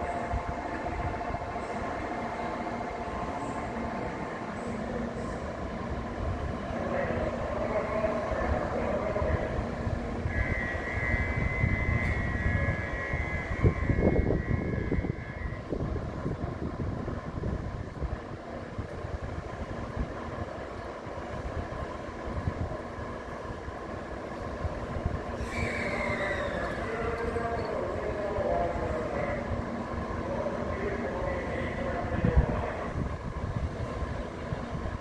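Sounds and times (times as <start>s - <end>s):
falling whine: 0.0s - 17.2s, 25.1s - 33.5s
train running gear rumble: 0.0s - 35.0s
high ringing tone: 25.4s - 29.6s.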